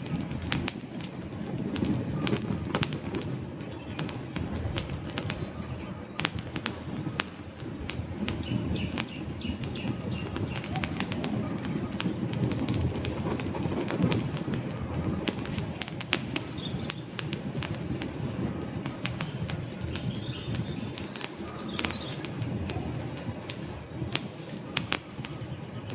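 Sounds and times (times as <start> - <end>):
fire crackling and popping: 0.0 - 25.9
flames rushing: 0.0 - 25.9.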